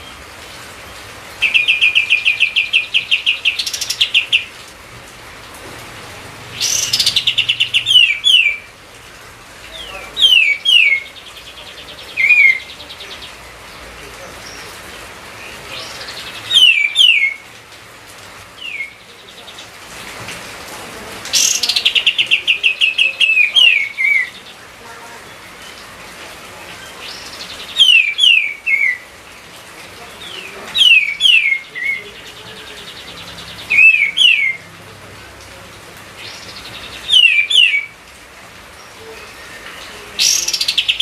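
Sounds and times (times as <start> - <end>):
songbird singing whistled notes: 1.4 - 4.5, 6.6 - 8.7, 9.8 - 13.4, 15.4 - 17.4, 18.6 - 19.6, 27.0 - 29.0, 30.2 - 34.6, 36.2 - 37.9.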